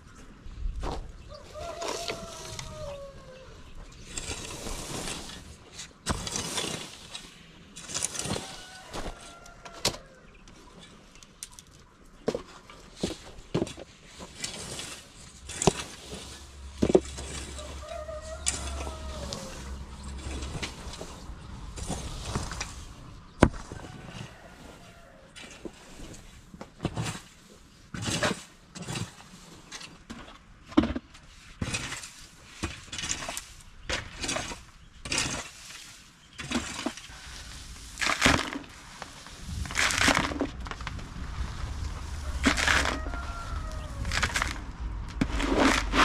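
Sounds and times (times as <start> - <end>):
chickens calling: 0.1 - 5.0, 15.5 - 26.1, 41.5 - 44.8
rooster crowing: 1.3 - 3.6, 8.3 - 10.3, 17.4 - 20.0, 23.6 - 25.3, 42.0 - 44.5.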